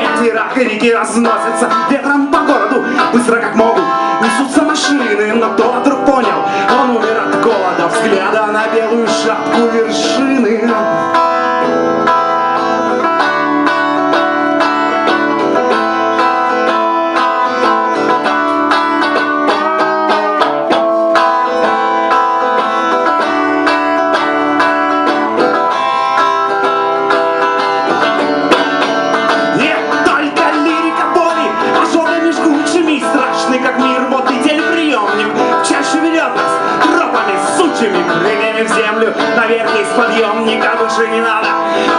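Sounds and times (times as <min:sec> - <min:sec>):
plucked strings playing: 0:00.0 - 0:41.9.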